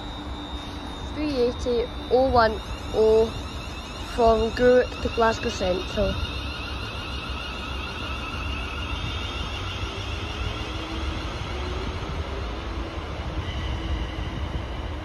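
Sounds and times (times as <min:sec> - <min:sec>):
faint motor whine: 0:00.0 - 0:15.0
train wheels rumbling on rails: 0:00.0 - 0:15.0.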